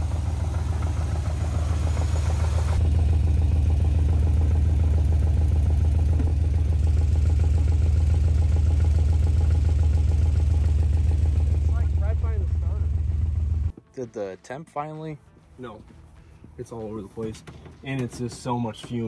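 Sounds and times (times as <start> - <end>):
car engine idling: 0.0 - 13.7.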